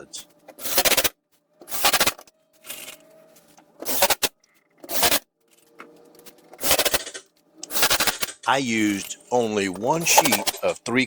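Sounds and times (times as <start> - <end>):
power driver driving screws into wood: 0.6 - 2.9, 3.8 - 5.3, 6.5 - 8.4.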